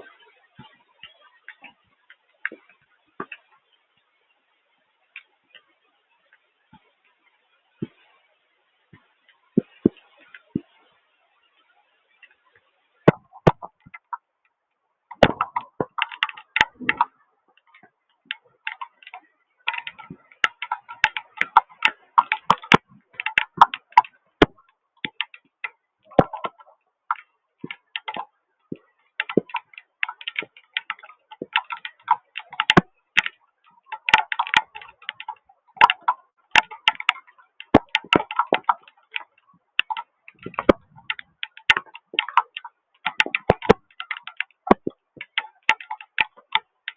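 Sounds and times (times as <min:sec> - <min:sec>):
raindrops tapping: 0:13.1 - 0:14.3, 0:15.1 - 0:46.9.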